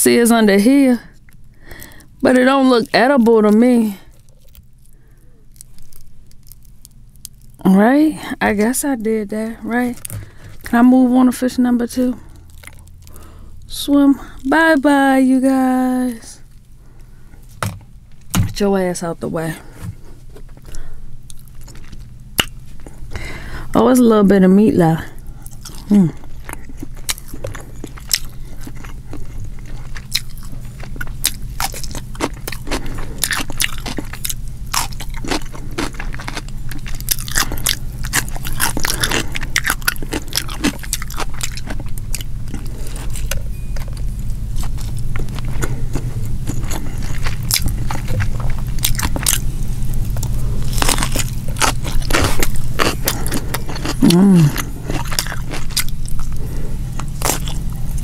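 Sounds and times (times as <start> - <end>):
low steady hum: 0.0 - 58.0
chewing and crunching food: 0.4 - 18.7, 19.4 - 23.8, 24.7 - 58.0
crunchy cucumber bite: 20.6 - 22.9, 25.4 - 58.0.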